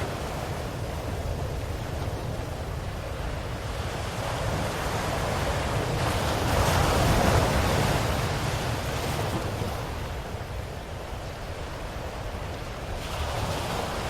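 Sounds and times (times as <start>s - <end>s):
ocean waves breaking on shore: 0.0s - 14.0s.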